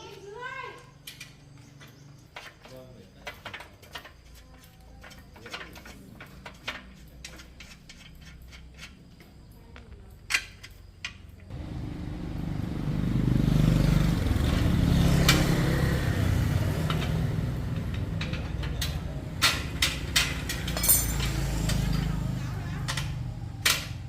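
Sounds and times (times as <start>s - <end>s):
hand tools on metal: 1.0s - 9.5s, 16.8s - 23.1s.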